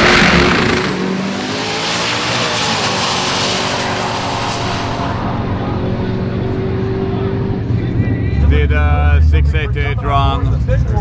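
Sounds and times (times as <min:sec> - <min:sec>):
tyre hiss and rushing noise: 0:00.0 - 0:01.5
drag racing car engine running: 0:00.0 - 0:11.0.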